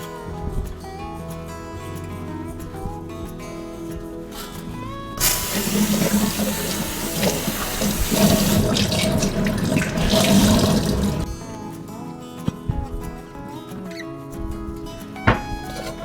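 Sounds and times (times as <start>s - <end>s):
tap water running into sink: 5.2s - 11.3s.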